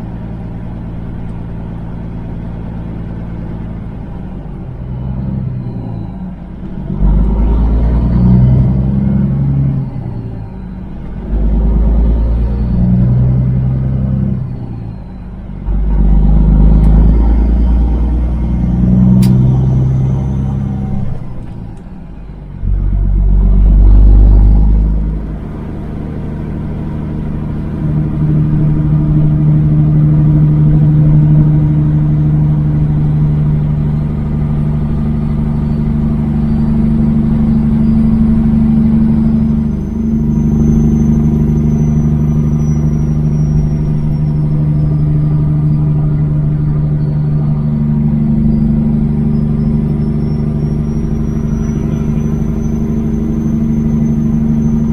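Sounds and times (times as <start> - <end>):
truck diesel engine rumble: 0.0 - 54.9.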